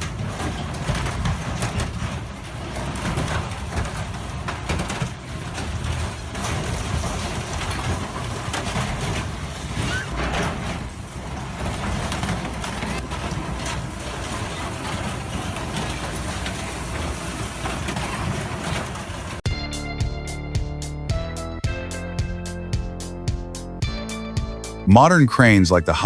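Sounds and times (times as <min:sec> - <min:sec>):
industrial shredder engine rumble: 0:00.0 - 0:19.5.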